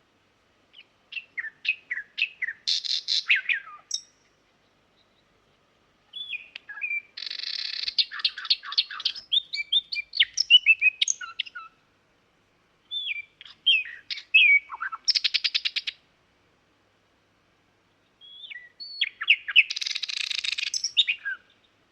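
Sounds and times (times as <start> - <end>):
nightingale singing: 0.7 - 5.4, 6.1 - 11.8, 12.8 - 16.0, 17.9 - 21.9.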